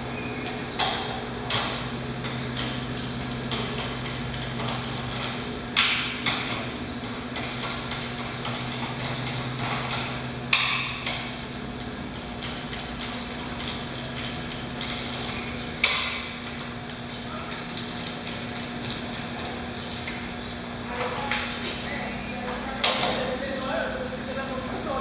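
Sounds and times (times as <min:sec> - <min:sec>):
steady low hum: 0:00.0 - 0:25.0
metallic clanks of engine parts: 0:00.4 - 0:11.4, 0:12.1 - 0:20.4.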